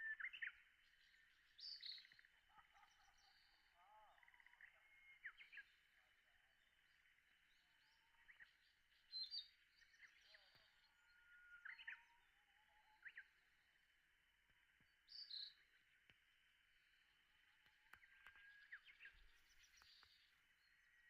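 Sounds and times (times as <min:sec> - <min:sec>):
birds chirping: 0:14.5 - 0:21.0.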